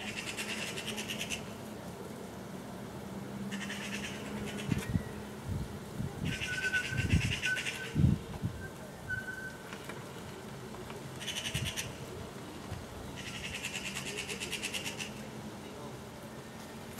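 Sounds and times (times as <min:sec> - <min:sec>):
magpies rattling chatter: 0:00.0 - 0:01.5, 0:03.5 - 0:04.9, 0:06.2 - 0:08.0, 0:11.2 - 0:12.1, 0:13.2 - 0:15.3.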